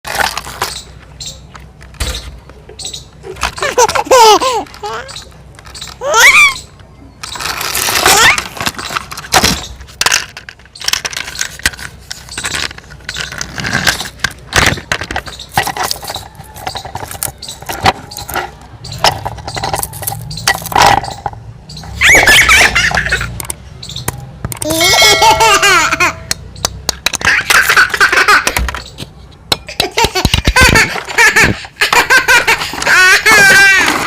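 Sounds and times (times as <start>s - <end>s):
plastic toys clattering: 0.0s - 2.4s, 3.2s - 34.0s
small child squealing: 6.0s - 6.7s, 8.0s - 8.4s, 21.9s - 22.6s.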